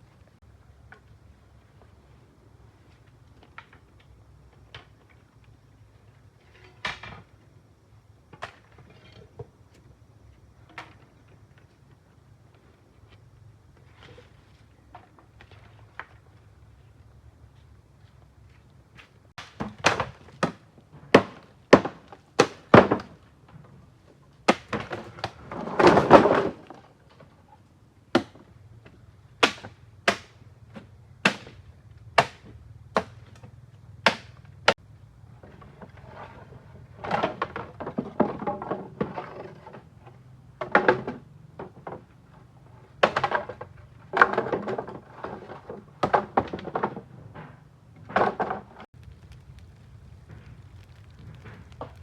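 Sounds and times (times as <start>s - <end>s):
scrape: 13.8s - 14.7s, 35.8s - 37.3s
rustling: 49.0s - 52.0s.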